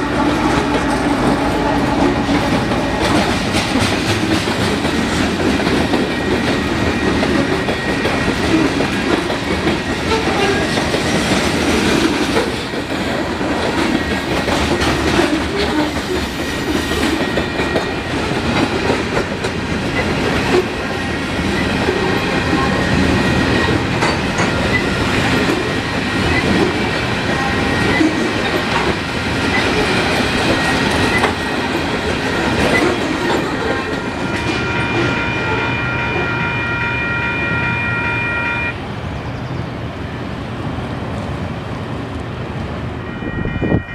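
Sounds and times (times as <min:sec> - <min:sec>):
train wheels clickety-clack: 0:00.0 - 0:36.4
freight train rumbling: 0:00.0 - 0:43.9.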